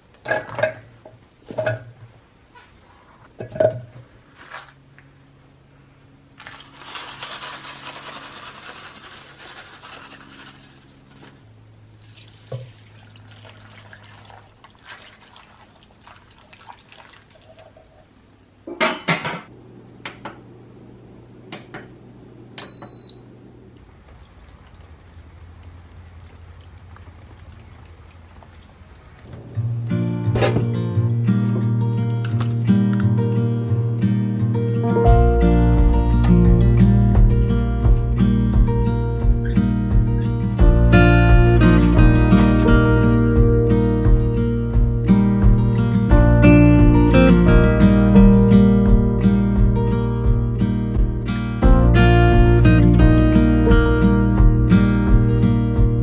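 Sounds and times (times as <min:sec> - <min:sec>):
objects knocking and clattering: 0:00.2 - 0:02.1, 0:03.4 - 0:04.1
low appliance hum: 0:17.4 - 0:29.8
short electronic beep: 0:22.6 - 0:23.4
water rushing: 0:23.7 - 0:29.3.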